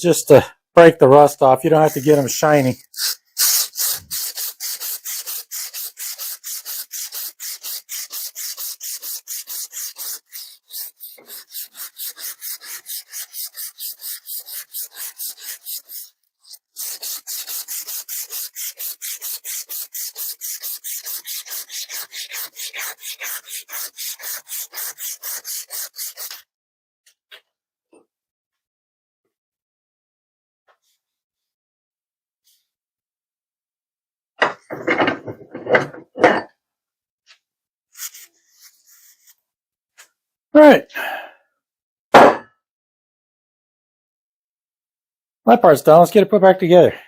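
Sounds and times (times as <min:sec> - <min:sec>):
emery cloth rasping on metal: 0:01.7 - 0:26.4.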